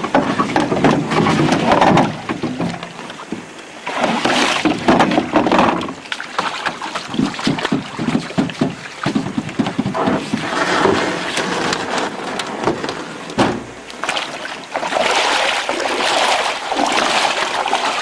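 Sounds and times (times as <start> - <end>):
water splashing around canoe: 0.0 - 18.0
sharp knock: 12.6 - 13.8.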